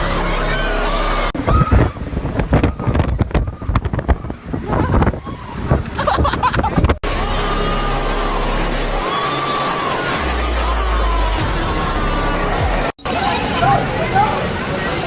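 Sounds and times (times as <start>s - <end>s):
wind gusting on microphone: 1.4s - 7.1s
background music: 7.0s - 13.0s.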